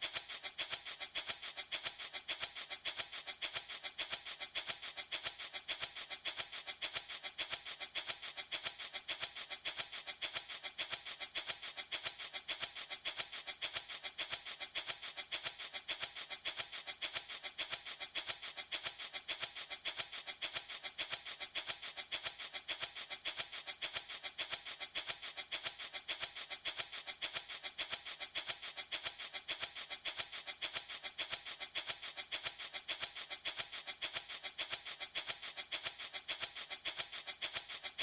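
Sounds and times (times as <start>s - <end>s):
baby rattle shaken: 0.0s - 38.0s.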